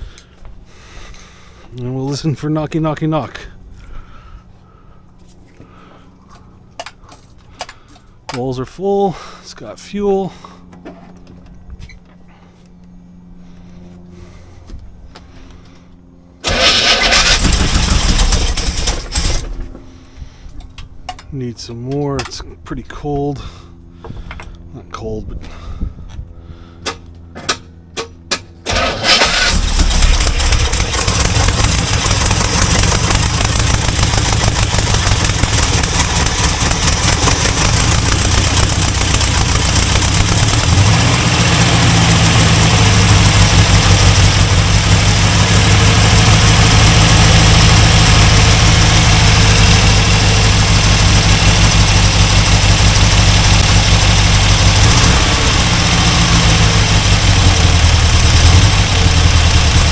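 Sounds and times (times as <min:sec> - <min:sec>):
car engine running: 0:00.0 - 0:59.9
car engine cranking with pops: 0:16.4 - 0:20.0, 0:26.8 - 0:59.9.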